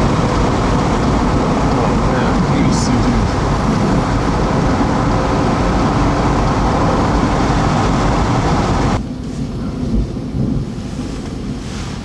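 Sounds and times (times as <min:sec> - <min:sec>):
thunder rumbling: 0:00.0 - 0:09.0.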